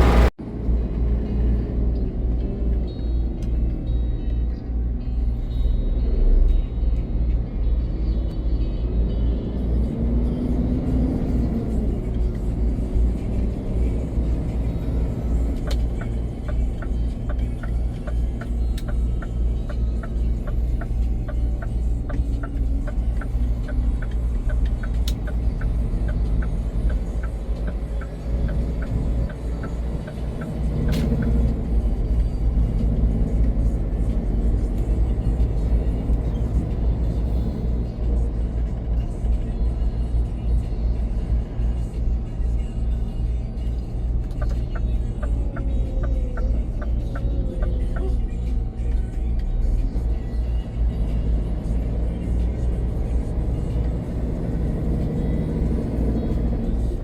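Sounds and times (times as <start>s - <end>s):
truck engine and road rumble: 0.0s - 57.0s
turn signal ticking: 9.9s - 57.0s.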